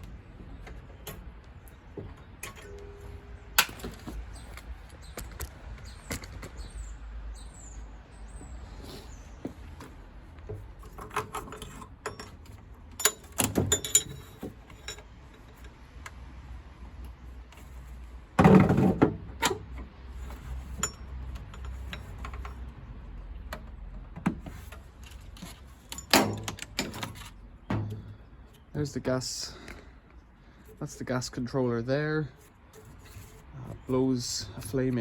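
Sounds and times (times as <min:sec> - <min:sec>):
metal parts clanking and rattling: 0:00.4 - 0:05.5, 0:10.8 - 0:15.8, 0:18.4 - 0:22.7, 0:24.3 - 0:28.6.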